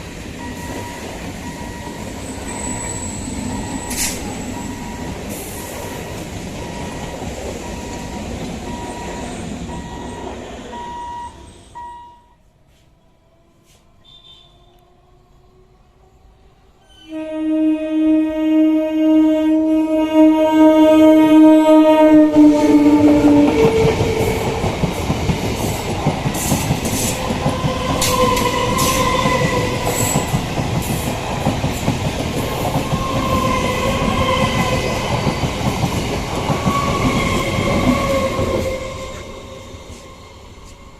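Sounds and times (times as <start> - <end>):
train horn: 13.5 - 15.0, 16.8 - 24.3.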